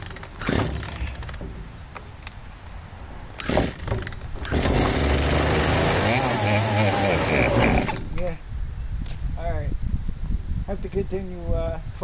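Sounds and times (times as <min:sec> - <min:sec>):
chainsaw recoil starter yanked: 0:00.0 - 0:01.5, 0:03.4 - 0:08.3
chainsaw engine running: 0:04.4 - 0:08.0.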